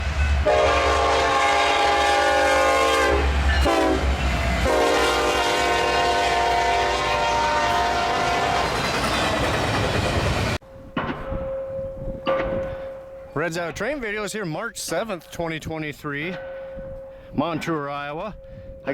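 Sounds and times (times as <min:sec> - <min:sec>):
passing train rumble: 0:00.0 - 0:14.8
locomotive air horn blasts: 0:00.4 - 0:08.8.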